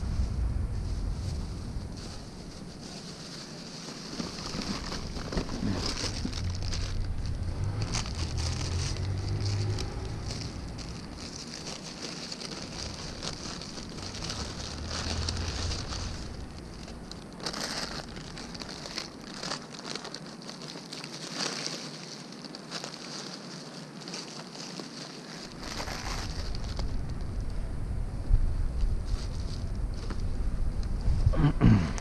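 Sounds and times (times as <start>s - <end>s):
crackling microphone noise: 0.0s - 32.0s
small motorized bicycle engine: 4.3s - 26.9s.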